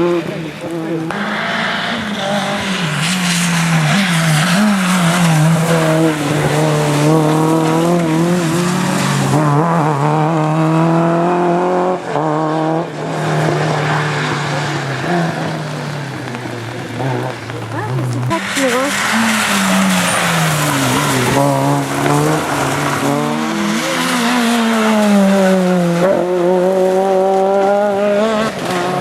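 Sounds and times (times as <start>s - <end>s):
car engine revving: 0.0s - 29.0s
tyres squealing: 14.9s - 25.0s.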